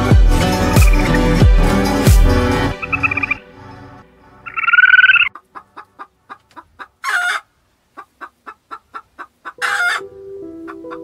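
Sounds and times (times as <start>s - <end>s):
harsh bird call: 2.7s - 3.4s, 4.5s - 5.3s
fowl clucking: 2.8s - 3.4s, 4.5s - 11.0s.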